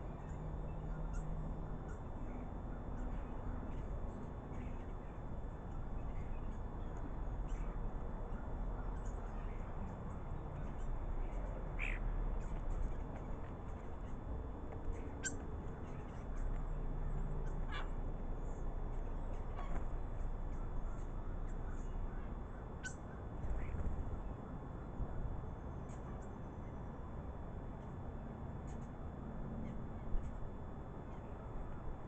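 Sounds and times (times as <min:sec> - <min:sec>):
low background rumble: 0:00.0 - 0:32.0
bird calls: 0:00.1 - 0:03.9, 0:10.6 - 0:14.2, 0:14.9 - 0:24.3.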